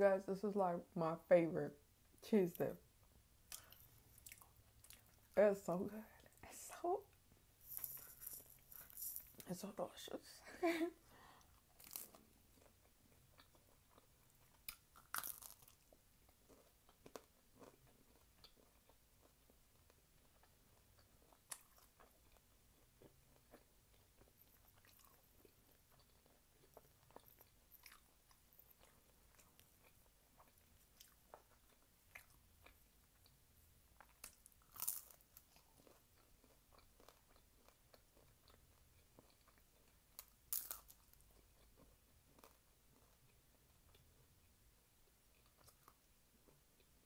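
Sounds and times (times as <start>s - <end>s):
faint chewing of crisp food: 1.9s - 9.8s, 10.9s - 47.0s
crunchy bites: 11.7s - 20.0s, 34.0s - 43.2s.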